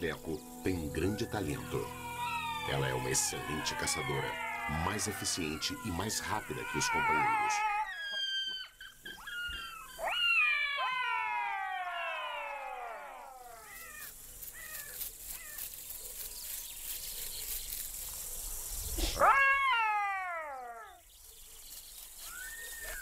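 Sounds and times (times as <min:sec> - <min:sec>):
jackal wailing call: 0:01.7 - 0:14.7, 0:19.2 - 0:21.0
jackal yelping: 0:01.8 - 0:14.1, 0:19.2 - 0:21.0.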